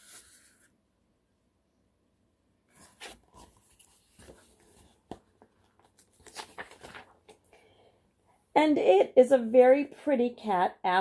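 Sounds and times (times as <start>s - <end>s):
book pages rustling: 0.0s - 0.7s, 2.7s - 7.5s.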